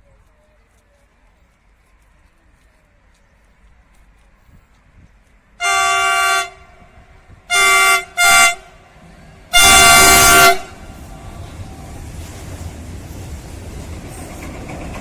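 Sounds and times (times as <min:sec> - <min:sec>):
train rumble: 0:00.0 - 0:15.0
locomotive horn blasts: 0:05.6 - 0:08.8, 0:09.5 - 0:10.9.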